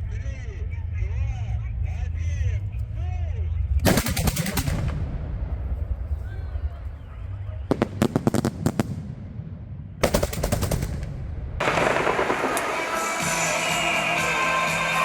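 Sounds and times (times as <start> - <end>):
fireworks crackling: 7.7 - 9.1, 11.6 - 15.0
fireworks cracking: 7.7 - 15.0
music: 11.7 - 15.0.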